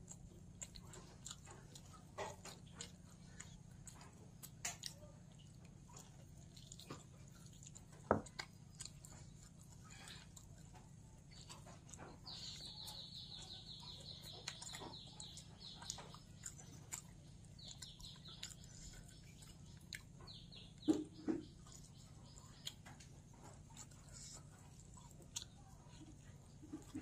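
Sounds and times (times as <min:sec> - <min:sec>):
small bird trilling chirps: 0:11.5 - 0:23.0.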